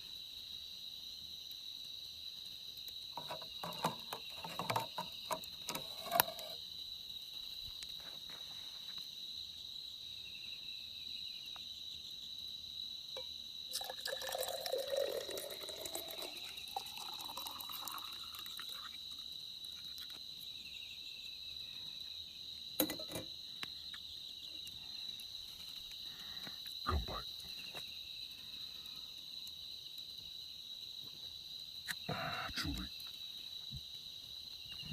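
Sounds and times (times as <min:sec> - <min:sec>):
crickets chirping: 0:00.0 - 0:34.9
liquid pouring into container: 0:13.7 - 0:19.2.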